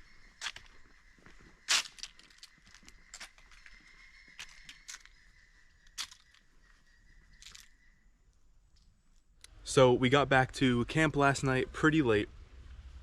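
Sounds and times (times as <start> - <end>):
footsteps on gravel: 0.4 - 5.2, 6.0 - 6.4, 7.4 - 7.7.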